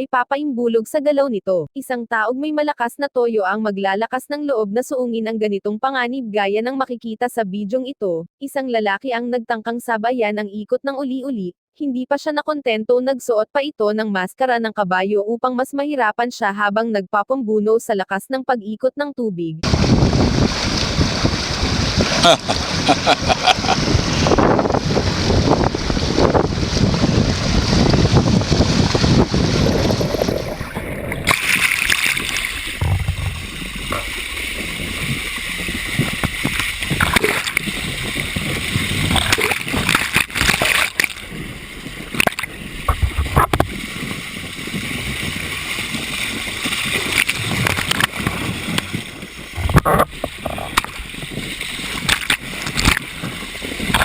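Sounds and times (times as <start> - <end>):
whirlpool water churning: 19.6 - 54.0.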